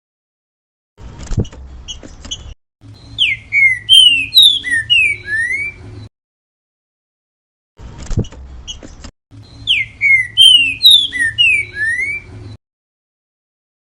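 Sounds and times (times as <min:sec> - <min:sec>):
bird whistling song: 0:02.3 - 0:05.8, 0:09.4 - 0:12.6.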